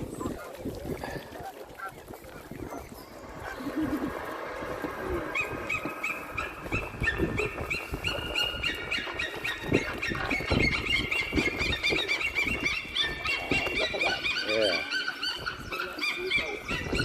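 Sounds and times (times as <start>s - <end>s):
cygnets peeping: 0.0s - 17.0s.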